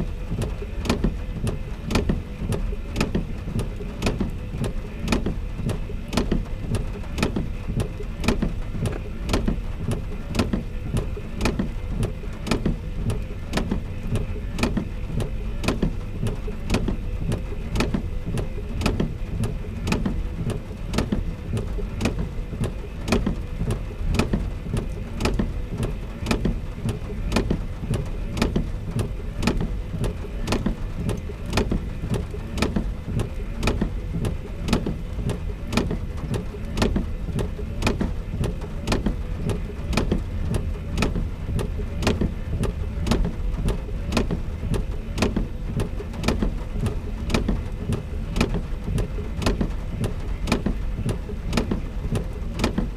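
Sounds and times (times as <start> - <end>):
steady low rumble: 0.0 - 52.9.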